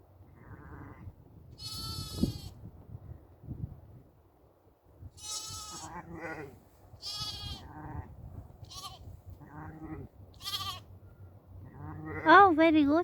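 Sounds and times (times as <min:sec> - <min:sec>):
sheep bleating: 0:01.6 - 0:02.5, 0:05.2 - 0:08.0, 0:08.6 - 0:10.9.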